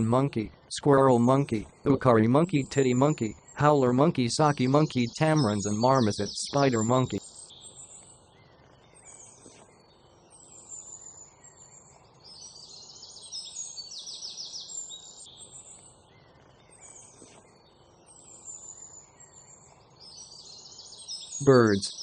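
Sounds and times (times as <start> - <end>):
birds chirping and calling: 0.0 - 9.7, 10.4 - 22.0
fast pulsed bird trills: 1.2 - 8.3, 20.1 - 22.0.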